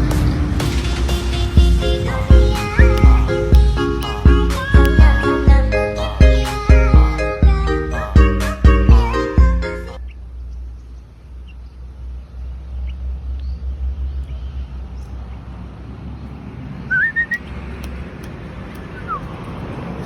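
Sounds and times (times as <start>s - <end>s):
low wind rumble: 0.0s - 8.3s, 8.9s - 20.0s
whistled bird calls: 16.9s - 17.5s, 18.9s - 19.3s.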